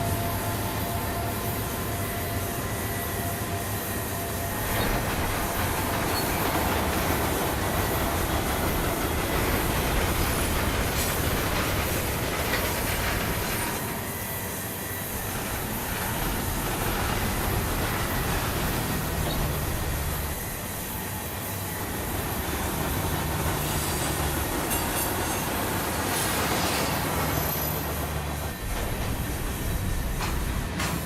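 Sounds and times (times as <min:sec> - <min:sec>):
freight train rumbling past: 0:00.0 - 0:31.0
faint wheel squeal: 0:26.1 - 0:28.2.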